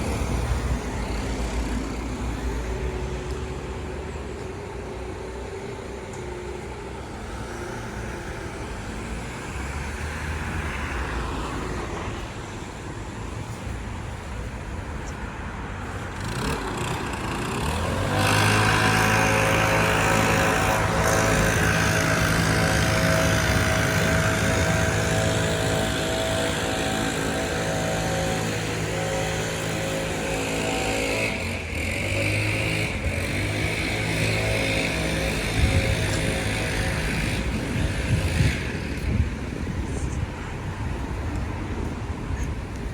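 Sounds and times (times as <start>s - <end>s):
steady engine hum close by: 0.0s - 42.9s
vehicles passing: 0.0s - 42.9s.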